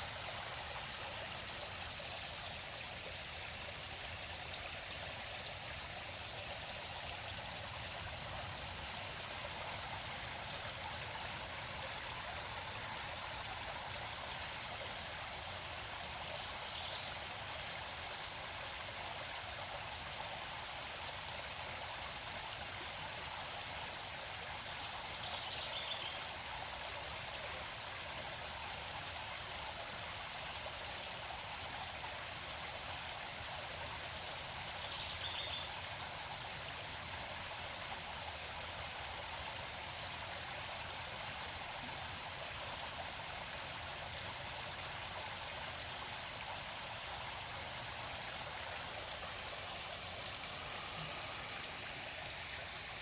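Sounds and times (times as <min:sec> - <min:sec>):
river flowing: 0:00.0 - 0:25.2, 0:25.8 - 0:53.0.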